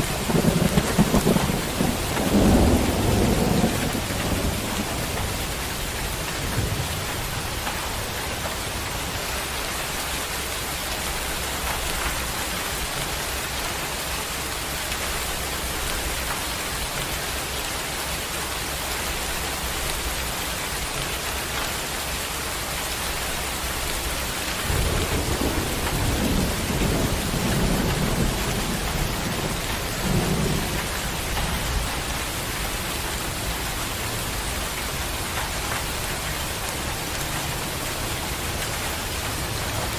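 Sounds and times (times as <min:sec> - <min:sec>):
thunder rumbling: 0:00.0 - 0:08.8, 0:23.9 - 0:36.3
heavy rain pouring: 0:00.0 - 0:39.9.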